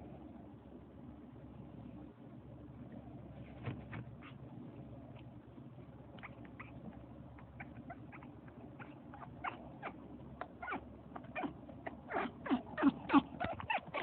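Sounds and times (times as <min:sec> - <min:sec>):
parrot whimpering squeaks: 0:07.6 - 0:10.0, 0:10.6 - 0:14.0.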